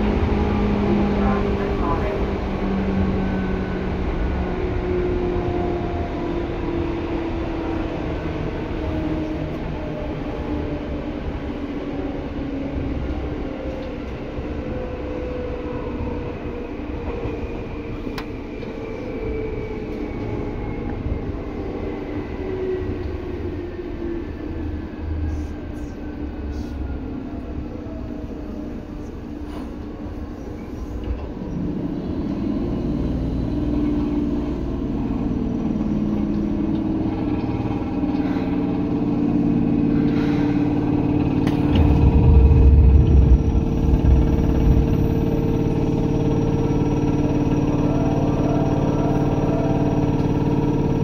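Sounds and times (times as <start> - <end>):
train wheels rumbling: 0.0 - 51.0.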